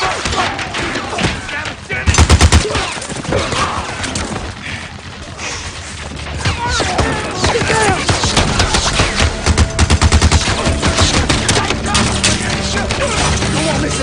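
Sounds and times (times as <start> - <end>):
gunshots: 0.0 - 14.0
men shouting: 6.6 - 9.4, 10.5 - 14.0.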